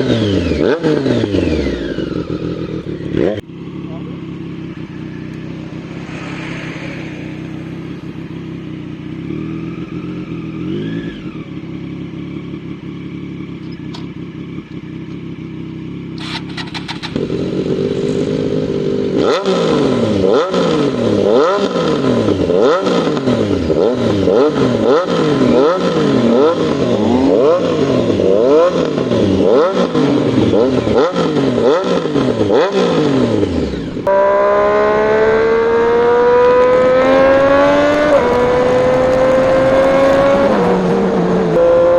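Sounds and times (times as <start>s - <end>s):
motorcycle engine revving: 0.0s - 41.9s
motorcycle engine idling: 1.8s - 6.0s, 7.8s - 19.1s.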